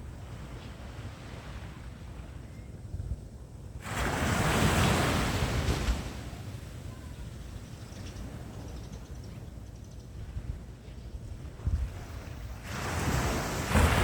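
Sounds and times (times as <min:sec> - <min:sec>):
wind buffeting microphone: 0:00.0 - 0:14.0
ocean surf: 0:03.8 - 0:07.4, 0:11.9 - 0:14.0.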